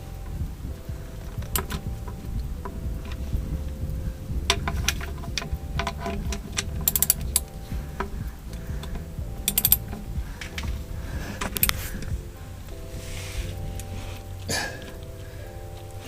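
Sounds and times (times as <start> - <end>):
ratchet wrench clicking: 4.5 - 7.5, 8.9 - 10.0
metallic tool clicks and knocks: 9.4 - 10.7.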